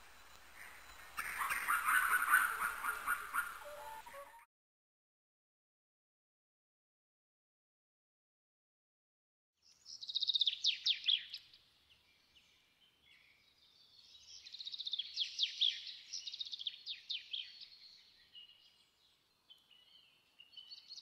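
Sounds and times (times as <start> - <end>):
songbird trilling: 0.4 - 4.4.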